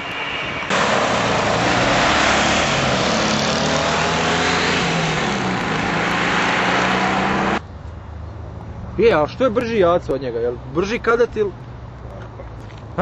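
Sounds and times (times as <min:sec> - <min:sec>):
loud rushing noise: 0:00.0 - 0:07.6
car engines accelerating hard: 0:00.7 - 0:07.6.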